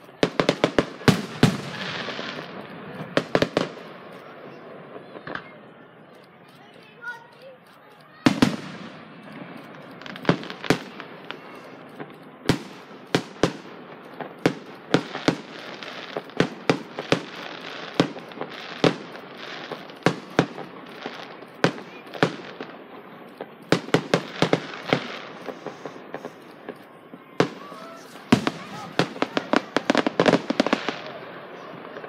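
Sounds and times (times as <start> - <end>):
fireworks bangs: 0.0 - 32.0
steady hiss: 8.6 - 32.0.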